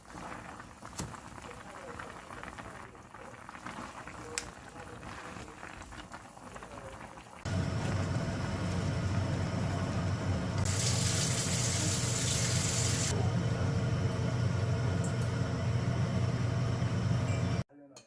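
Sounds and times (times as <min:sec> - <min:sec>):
hissing water spray: 0:10.6 - 0:13.2
tap water running into sink: 0:10.6 - 0:13.2.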